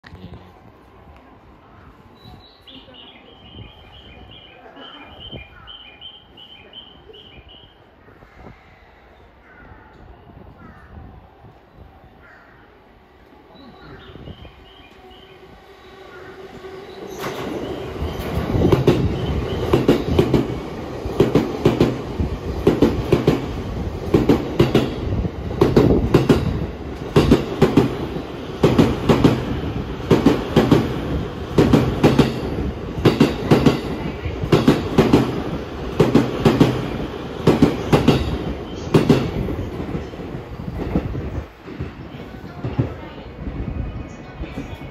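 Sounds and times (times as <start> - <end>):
train wheels clacking over rail joints: 24.1 - 30.9, 31.5 - 39.5.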